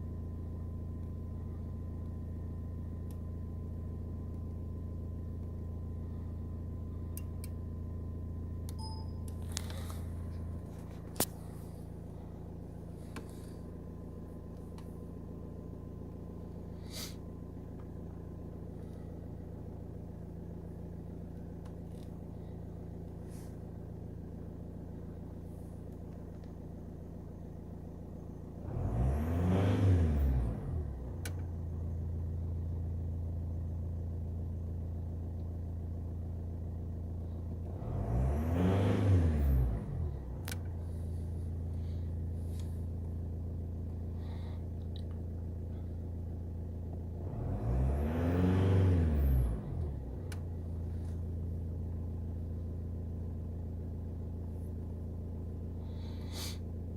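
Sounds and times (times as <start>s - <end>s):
diesel engine idling: 0.0s - 28.6s, 30.5s - 37.7s, 39.6s - 47.4s, 49.1s - 56.9s
engine revving: 28.5s - 31.4s, 37.6s - 42.8s, 47.0s - 51.9s.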